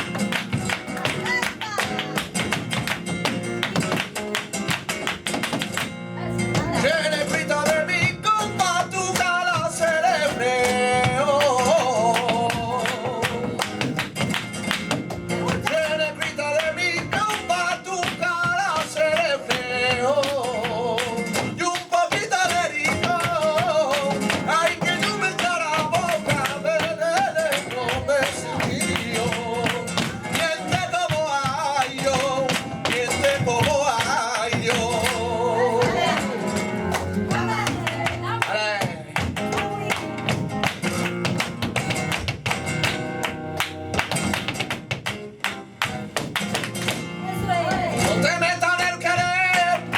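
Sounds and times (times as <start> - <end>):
flamenco guitar: 0.0 - 49.9
man singing: 6.4 - 14.0, 15.2 - 39.9, 47.4 - 49.9.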